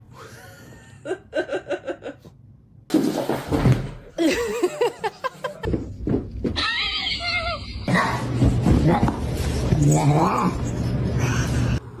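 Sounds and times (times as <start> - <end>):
person laughing: 4.2 - 5.7.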